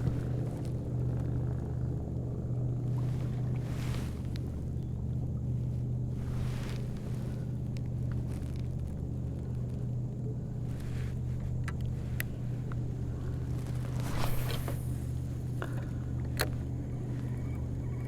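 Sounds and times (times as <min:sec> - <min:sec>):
faint clicks: 0:06.8 - 0:18.0
electric motor humming: 0:11.5 - 0:18.0.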